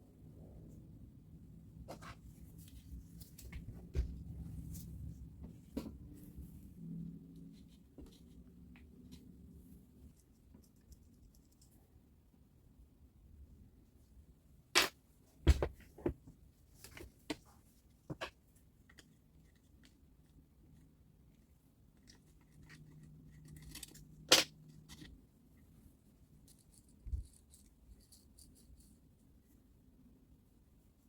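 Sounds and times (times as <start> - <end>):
dull thump: 15.4 - 16.2.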